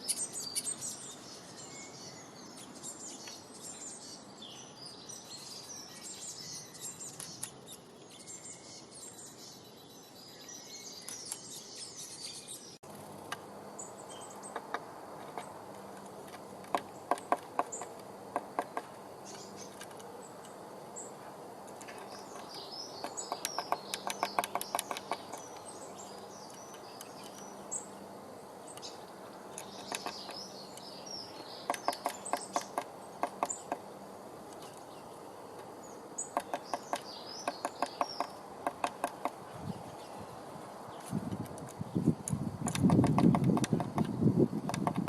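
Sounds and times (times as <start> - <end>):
bird twittering calls: 0.0 - 12.8, 13.7 - 15.6, 16.6 - 33.9, 34.5 - 45.0
scratching and tapping in nest box: 14.5 - 20.1, 21.8 - 25.6, 31.7 - 33.8, 36.3 - 39.4, 42.6 - 45.0.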